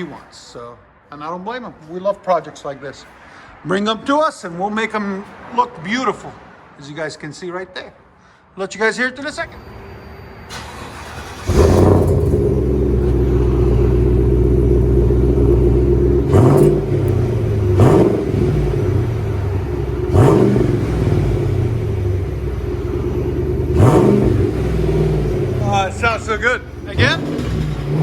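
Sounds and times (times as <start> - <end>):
car engine idling and revving: 10.5 - 28.0.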